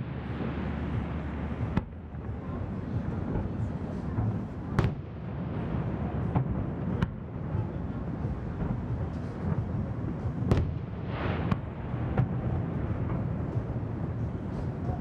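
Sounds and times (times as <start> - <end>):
distant fireworks rumble: 0.0 - 15.0
firework bangs: 4.3 - 7.6, 10.4 - 13.4.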